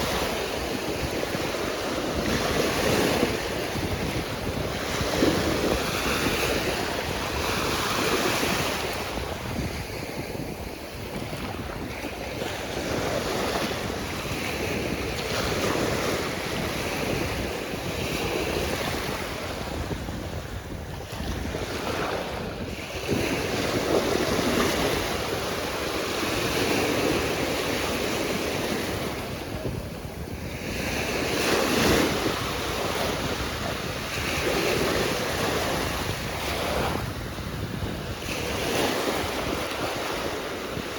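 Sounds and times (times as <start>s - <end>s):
waves breaking on shore: 0.0s - 40.9s
wind rumbling on microphone: 0.0s - 40.9s.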